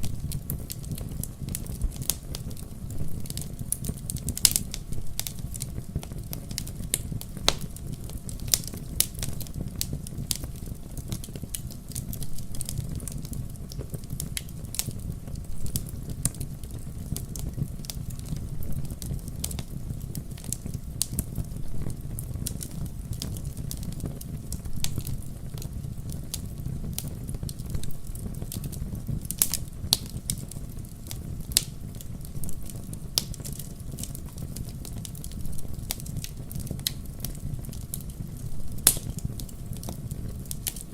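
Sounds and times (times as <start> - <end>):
fire crackling: 0.0 - 40.9
low rumble of flames: 0.0 - 40.9
sharp pops and snaps: 6.5 - 7.8, 38.8 - 40.9.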